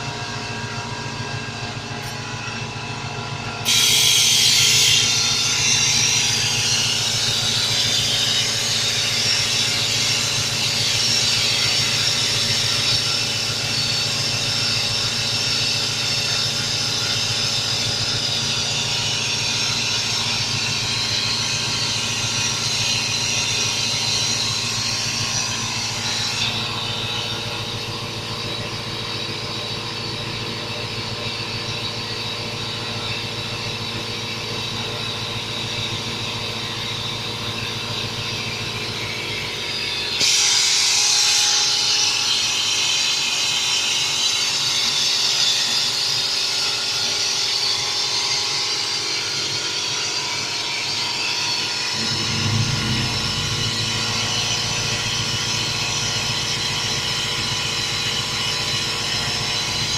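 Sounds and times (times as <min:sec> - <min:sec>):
electric vacuum running: 0:01.2 - 0:29.9, 0:51.2 - 0:59.9.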